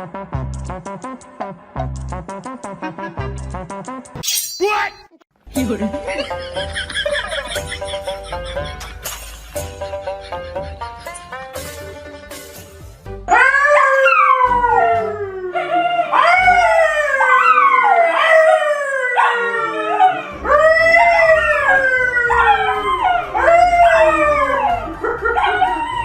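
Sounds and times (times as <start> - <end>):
dog howling: 13.3 - 26.0.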